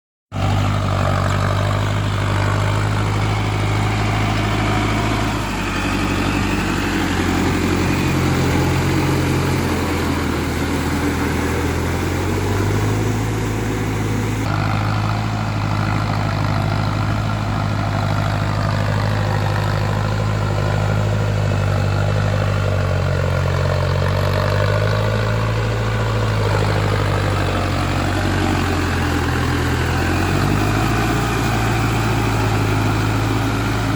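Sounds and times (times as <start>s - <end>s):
tractor diesel engine running: 0.3s - 33.9s.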